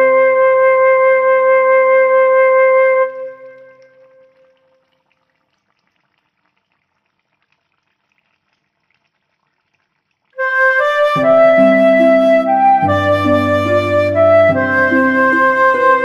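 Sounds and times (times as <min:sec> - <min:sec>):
background music with chords and bass: 0:10.4 - 0:16.0.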